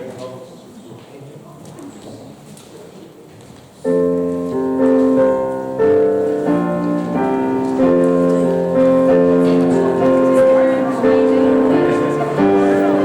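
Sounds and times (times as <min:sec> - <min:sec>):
keyboard playing slow chords: 0:03.9 - 0:13.0.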